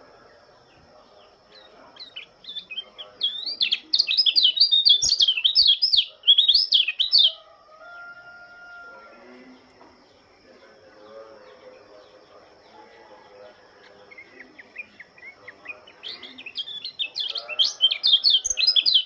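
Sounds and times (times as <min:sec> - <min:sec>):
faint steady tone: 0:00.0 - 0:03.9
bird singing high warbling phrase: 0:01.1 - 0:07.4, 0:14.0 - 0:19.0.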